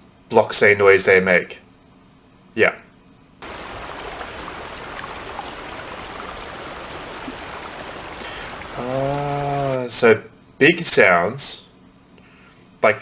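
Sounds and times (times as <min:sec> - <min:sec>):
rushing river water: 0:03.4 - 0:09.3.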